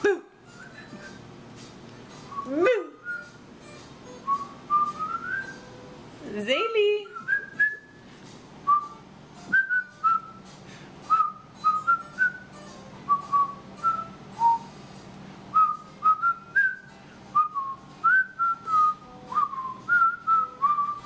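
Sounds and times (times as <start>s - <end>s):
person whistling short notes: 0.5s - 1.2s, 2.3s - 3.4s, 4.2s - 5.7s, 7.1s - 8.0s, 8.7s - 10.4s, 11.1s - 12.5s, 13.1s - 14.7s, 15.5s - 21.0s.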